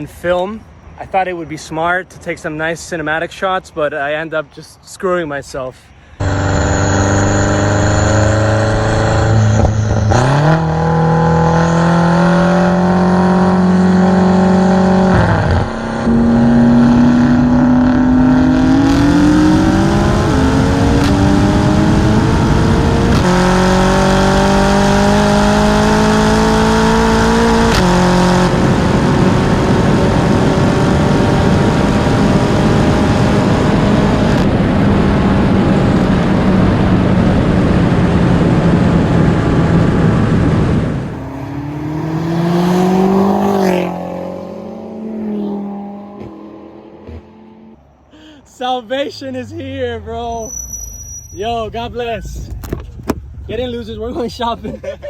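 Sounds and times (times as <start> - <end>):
car engine accelerating through gears: 6.2 - 47.9.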